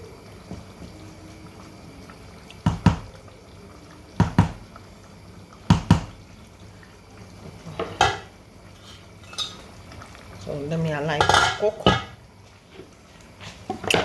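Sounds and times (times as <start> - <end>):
thick bubbles plopping: 0.0 - 8.4.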